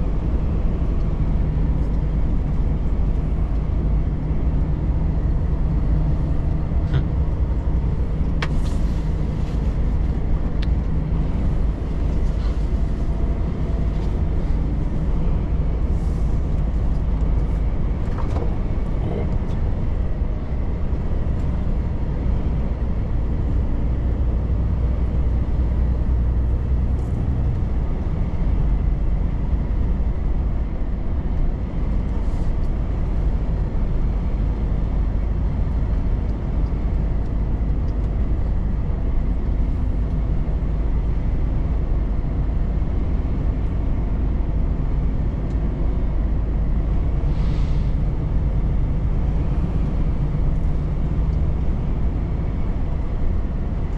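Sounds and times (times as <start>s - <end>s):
road noise: 0.0s - 53.9s
truck diesel engine drone: 0.0s - 53.9s.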